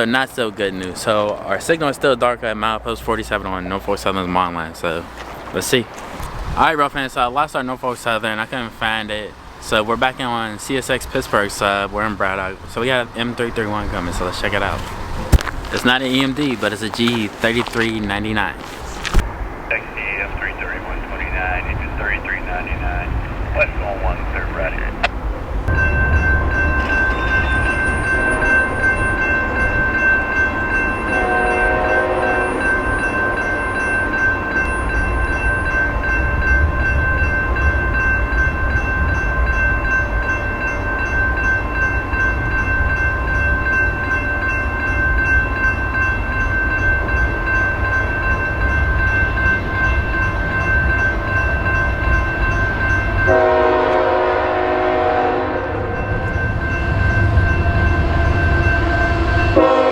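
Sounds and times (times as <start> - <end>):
freight train rumbling: 0.0 - 59.9
high squealing ring: 25.7 - 53.4, 56.0 - 59.9
train horn blast: 30.8 - 34.0, 53.2 - 59.9.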